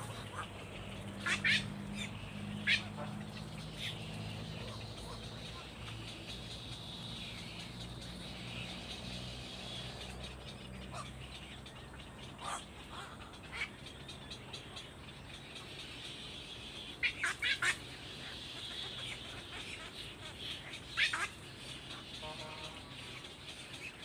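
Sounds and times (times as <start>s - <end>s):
sharp high bird calls: 0.0s - 11.7s
birds calling: 0.0s - 24.0s.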